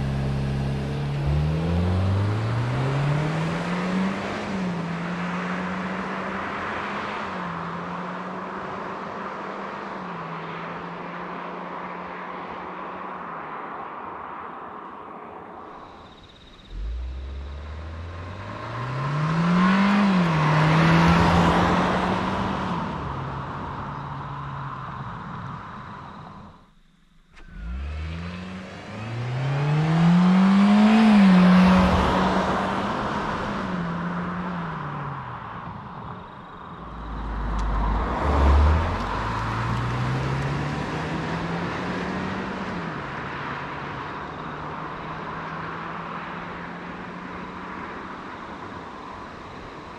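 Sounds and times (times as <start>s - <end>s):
car engine revving: 0.0s - 8.7s, 15.7s - 46.5s
road and wind noise: 0.0s - 49.9s.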